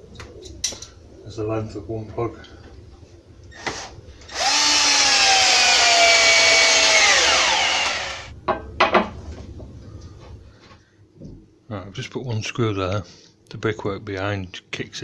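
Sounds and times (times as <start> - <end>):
electric drill whine: 3.5 - 8.3.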